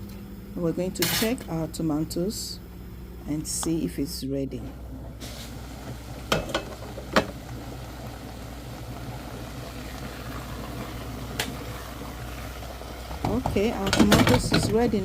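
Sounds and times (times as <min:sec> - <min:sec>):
pot boiling and bubbling: 0:04.5 - 0:15.0.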